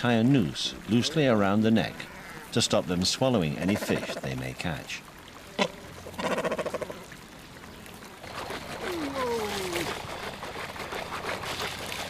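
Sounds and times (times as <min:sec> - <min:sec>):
water trickling and splashing: 0:00.0 - 0:12.0.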